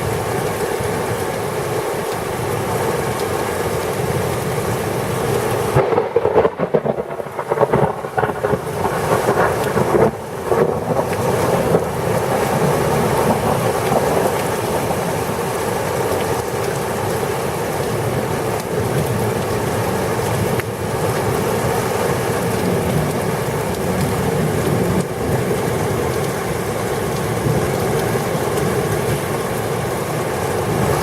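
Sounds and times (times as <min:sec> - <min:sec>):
heavy rain pouring: 0:00.0 - 0:31.0
thunder rumbling: 0:05.7 - 0:15.6.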